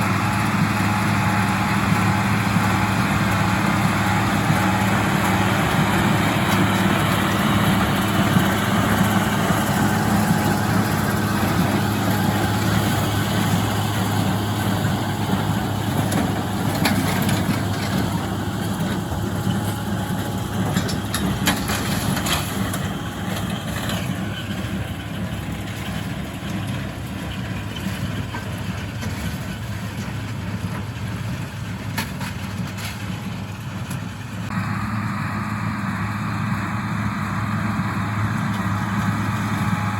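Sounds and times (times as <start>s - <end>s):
baler machinery clattering: 0.0s - 34.7s
diesel tractor running: 0.0s - 39.9s.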